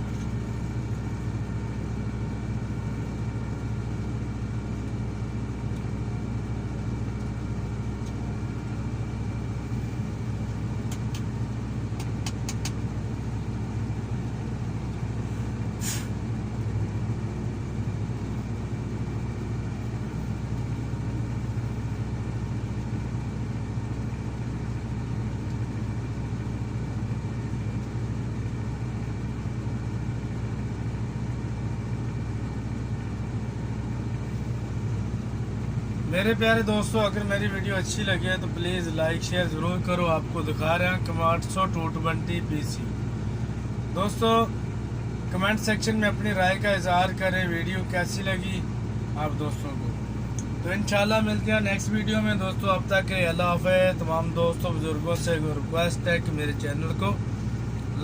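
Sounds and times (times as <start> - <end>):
excavator diesel engine running: 0.0 - 58.0
brief hiss: 15.8 - 16.2.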